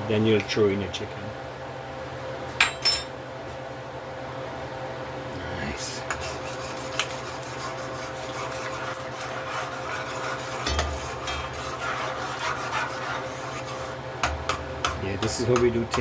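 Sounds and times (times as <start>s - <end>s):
chicken sizzling in a pot: 5.9s - 14.5s
spoon scraping and clicking on pot: 6.0s - 16.0s.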